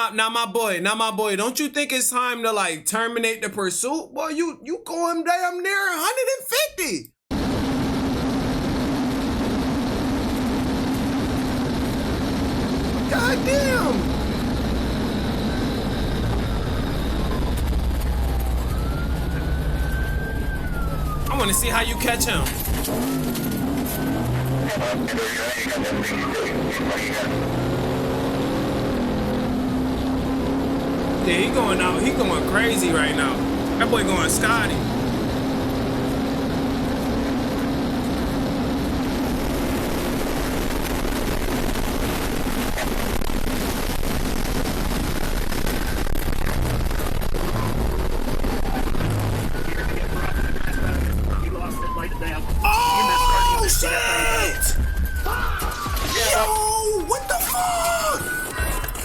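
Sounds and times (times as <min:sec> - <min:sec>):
road and engine rumble: 0:07.6 - 0:42.6
siren wailing: 0:13.1 - 0:25.0, 0:31.2 - 0:35.9, 0:51.0 - 0:59.0.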